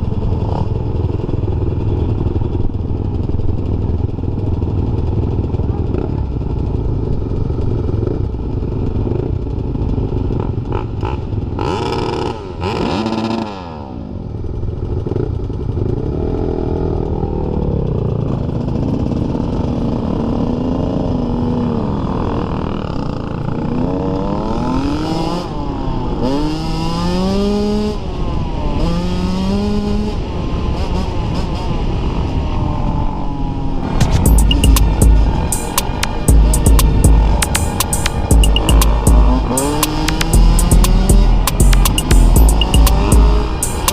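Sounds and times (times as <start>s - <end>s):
low rumble: 33.8s - 35.5s
dirt bike engines revving: 35.3s - 43.9s.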